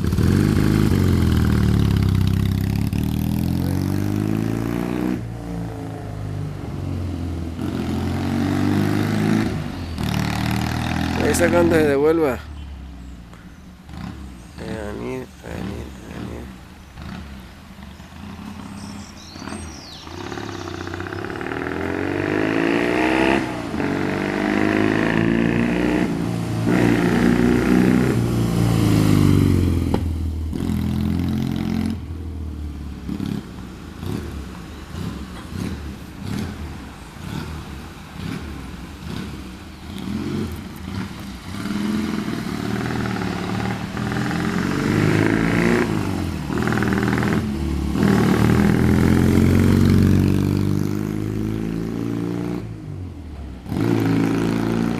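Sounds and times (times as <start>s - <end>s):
motorcycle engine running: 0.0s - 6.0s.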